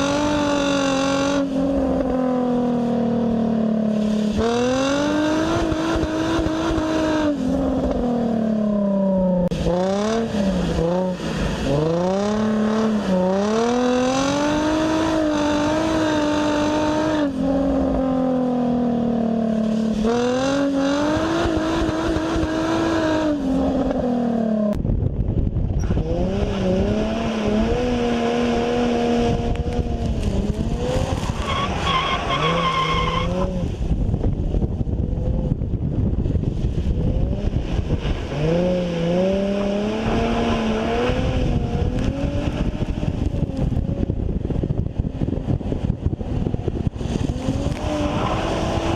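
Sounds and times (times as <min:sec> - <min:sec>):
car engine revving: 0:00.0 - 0:24.8, 0:25.8 - 0:34.2, 0:36.5 - 0:44.2, 0:46.1 - 0:48.9
tyre squeal: 0:31.1 - 0:33.6.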